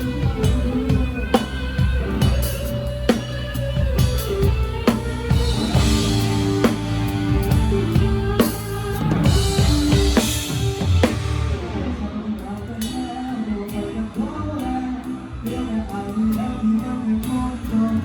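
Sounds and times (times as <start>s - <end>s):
cymbal crashes: 0.0s - 13.5s
live band music: 0.0s - 18.0s.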